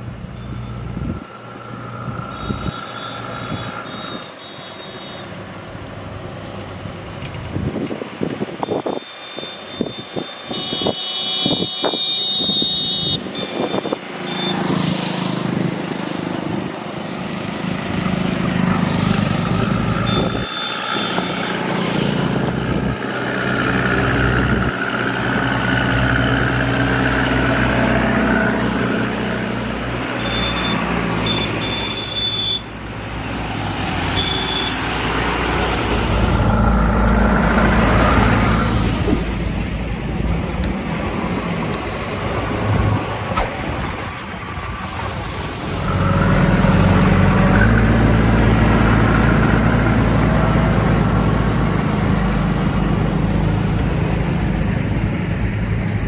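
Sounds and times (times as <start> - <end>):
short high-pitched beeps: 2.3 - 5.4, 8.6 - 14.7, 20.0 - 21.4, 30.2 - 32.7.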